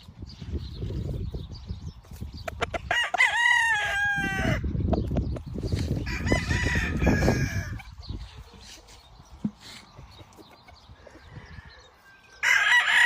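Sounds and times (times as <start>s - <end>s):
rooster crowing: 2.9s - 4.6s, 6.0s - 7.8s, 11.2s - 13.0s.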